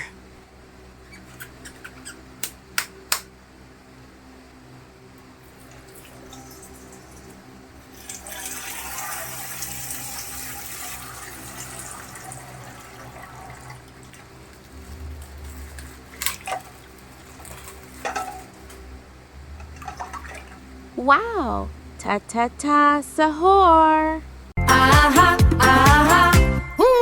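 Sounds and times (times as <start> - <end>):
water pouring from plastic bag: 8.0 - 18.5.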